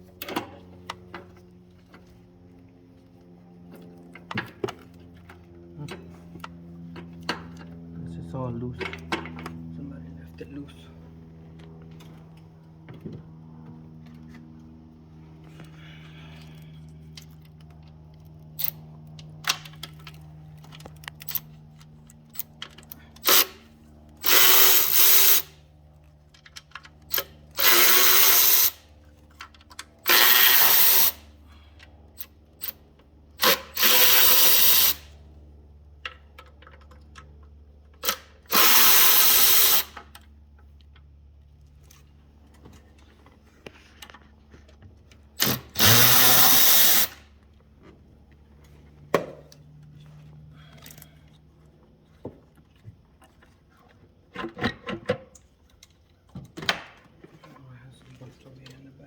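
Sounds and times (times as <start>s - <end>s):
power drill bursts: 23.2s - 23.6s, 24.2s - 25.5s, 27.1s - 28.8s, 30.0s - 31.2s, 33.4s - 35.1s, 38.0s - 40.0s, 45.4s - 47.2s.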